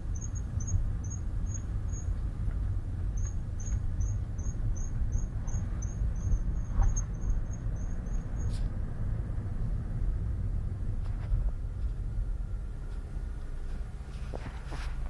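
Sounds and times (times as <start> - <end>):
car brake squeaking: 0.0 - 2.2, 3.1 - 8.7
low road rumble: 0.0 - 15.0.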